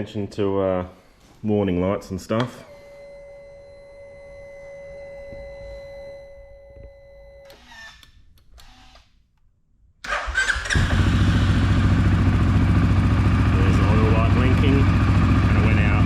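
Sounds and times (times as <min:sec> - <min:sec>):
quad engine starting and idling: 0:10.0 - 0:16.0.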